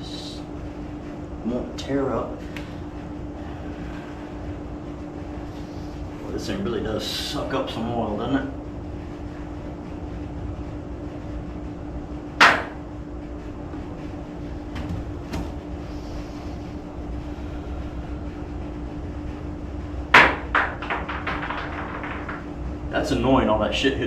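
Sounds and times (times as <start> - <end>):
steady low hum: 0.0 - 24.0
debris knocking on roof: 12.4 - 12.9, 20.2 - 22.5.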